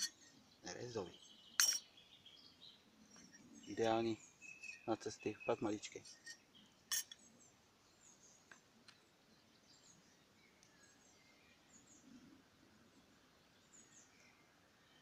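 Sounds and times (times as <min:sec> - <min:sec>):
faint bird chirps: 0:00.0 - 0:15.0
faint clicks: 0:10.6 - 0:10.8.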